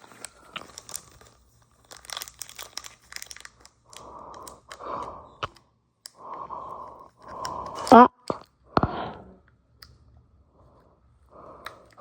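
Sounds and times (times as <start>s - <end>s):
foil pack tearing: 0.0s - 3.6s
foil wrapper crinkling: 0.0s - 4.4s.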